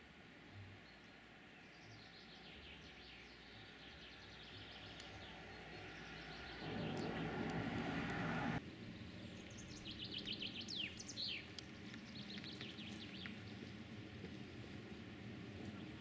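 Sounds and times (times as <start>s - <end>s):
faint songbirds chirping: 0.0s - 13.8s
louder steady noise: 6.4s - 8.6s.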